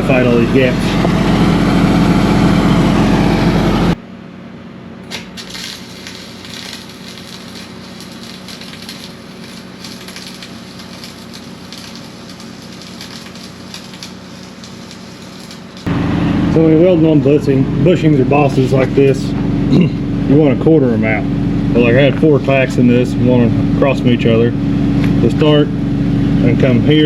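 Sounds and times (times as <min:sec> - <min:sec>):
welder crackling: 0:00.0 - 0:04.0, 0:05.0 - 0:17.4
engine running: 0:00.0 - 0:27.0.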